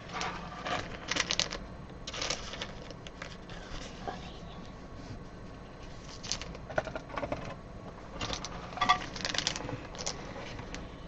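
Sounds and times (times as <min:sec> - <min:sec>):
cards and packaging crinkling: 0:00.0 - 0:04.4, 0:05.9 - 0:07.2, 0:08.2 - 0:10.9.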